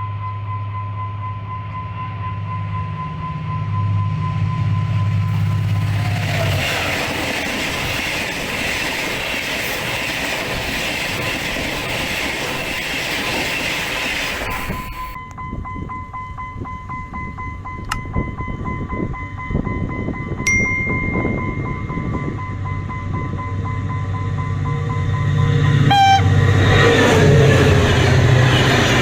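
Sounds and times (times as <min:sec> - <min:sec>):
diesel train rushing on rails: 0:00.0 - 0:29.0
steady whine: 0:02.3 - 0:15.2.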